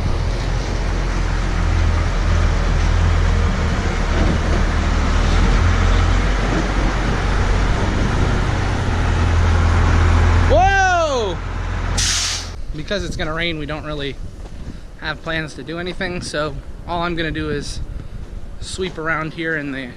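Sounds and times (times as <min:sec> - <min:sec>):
truck engine humming: 0:00.0 - 0:12.7.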